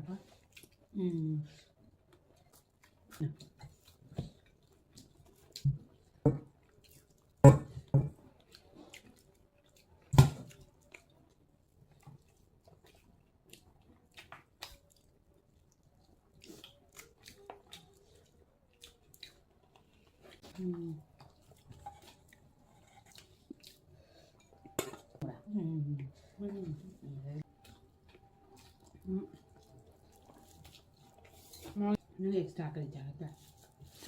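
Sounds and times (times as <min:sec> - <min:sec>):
person chewing and biting: 0:27.6 - 0:31.7.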